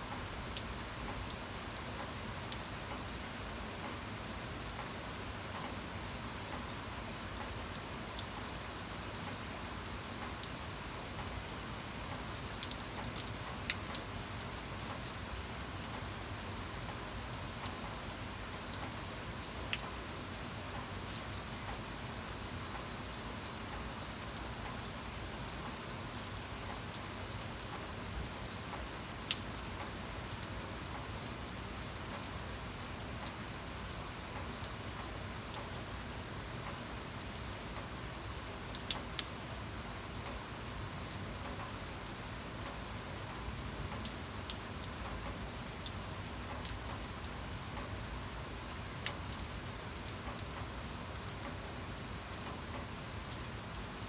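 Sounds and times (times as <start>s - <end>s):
steady rain hiss: 0.0s - 54.0s
raindrops ticking: 36.6s - 40.5s, 42.6s - 54.0s.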